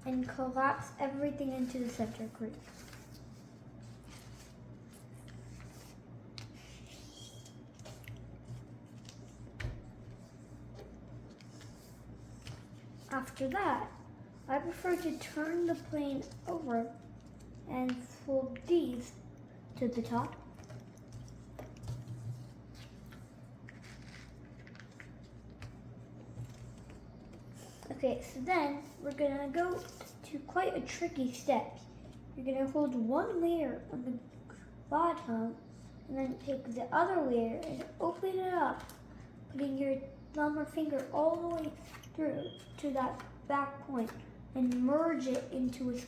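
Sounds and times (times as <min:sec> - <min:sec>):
low steady hum: 0:00.0 - 0:46.0
paper rustling and crinkling: 0:01.2 - 0:14.0, 0:14.6 - 0:19.1, 0:19.8 - 0:28.0.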